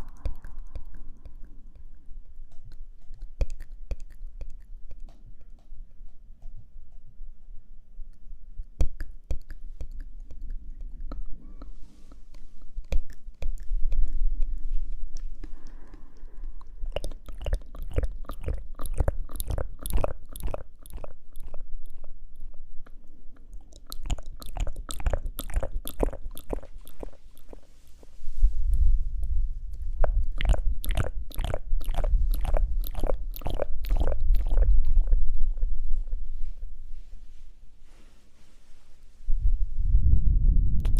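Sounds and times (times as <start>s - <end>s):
wet mouth clicks and smacks: 0.0s - 7.0s, 8.1s - 36.3s
soft breathy hiss: 9.5s - 17.2s, 26.6s - 30.3s, 34.8s - 40.0s
low rumble: 27.8s - 37.8s, 39.2s - 40.9s.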